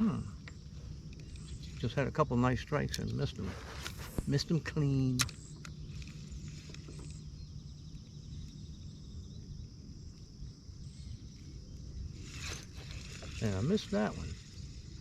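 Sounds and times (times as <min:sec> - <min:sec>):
faint hum: 0:00.0 - 0:15.0
sharp click: 0:05.1 - 0:07.2.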